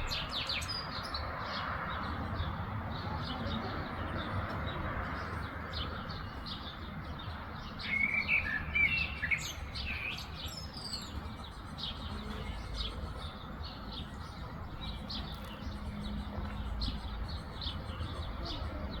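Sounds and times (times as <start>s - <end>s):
bird warbling song: 0.0s - 1.2s
small birds chirping: 0.0s - 19.0s.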